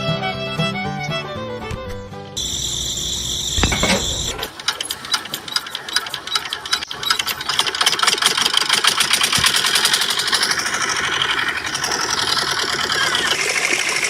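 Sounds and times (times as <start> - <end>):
model engine clattering: 3.6 - 14.0.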